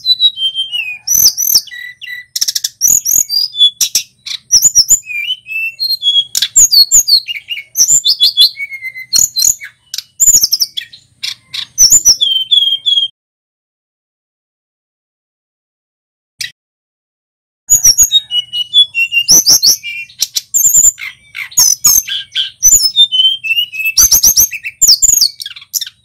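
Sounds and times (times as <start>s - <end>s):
bird singing whistled phrases: 0.0s - 13.1s, 17.7s - 26.0s
sharp clicking bird calls: 0.0s - 13.1s, 17.7s - 26.0s.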